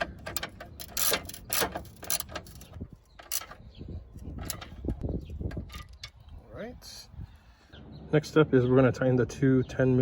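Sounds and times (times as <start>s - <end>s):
hand ratchet clicking: 0.4s - 2.6s.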